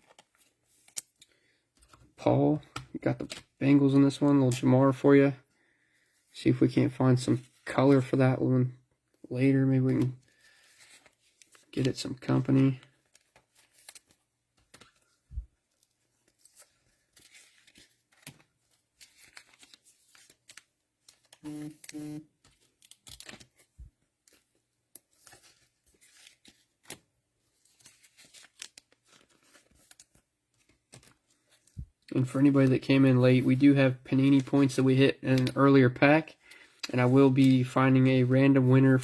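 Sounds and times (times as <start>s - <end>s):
cellophane wrapper crinkling and tearing: 0.0s - 1.3s, 10.0s - 32.8s.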